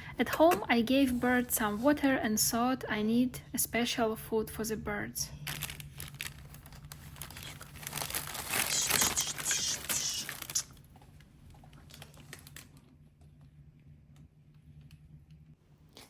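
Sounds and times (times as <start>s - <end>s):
crinkling handling noise: 5.4s - 13.4s.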